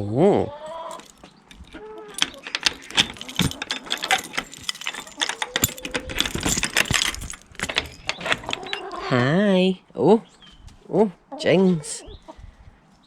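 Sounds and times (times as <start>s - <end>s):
chicken coop rattling and clattering: 0.8s - 9.2s.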